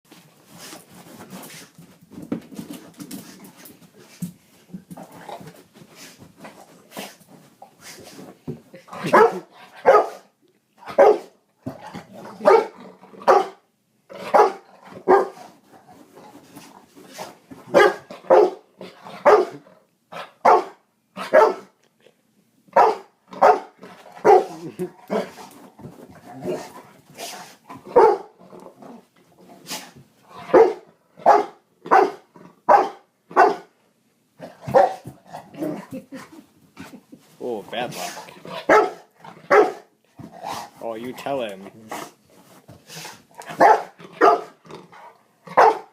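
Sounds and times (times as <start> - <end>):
dog barking: 9.0 - 10.3, 10.9 - 11.4, 12.4 - 13.6, 14.3 - 15.4, 17.7 - 18.6, 19.2 - 19.6, 20.4 - 21.7, 22.8 - 24.6, 27.9 - 28.3, 30.5 - 33.7, 34.7 - 35.0, 38.6 - 39.9, 43.5 - 44.6, 45.5 - 45.9.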